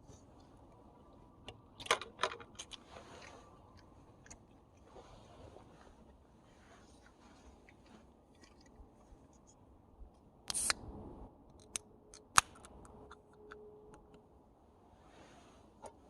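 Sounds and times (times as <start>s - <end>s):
rustling scrape: 2.8s - 3.6s, 4.8s - 9.5s, 15.0s - 16.0s.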